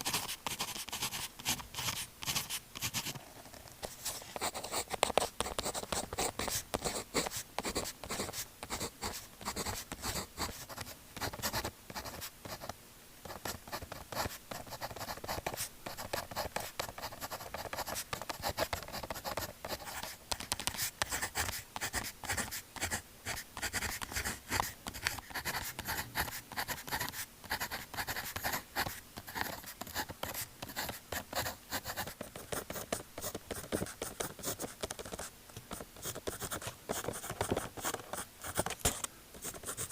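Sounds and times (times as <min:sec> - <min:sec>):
pen scratching on paper: 0:00.0 - 0:03.2, 0:03.8 - 0:12.7, 0:13.3 - 0:39.9.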